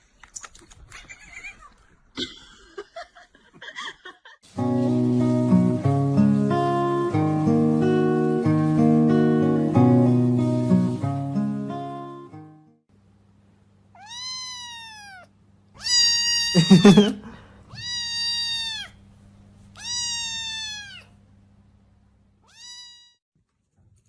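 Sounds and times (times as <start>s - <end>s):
cat meowing: 14.0s - 19.0s, 19.8s - 21.2s, 22.4s - 23.2s.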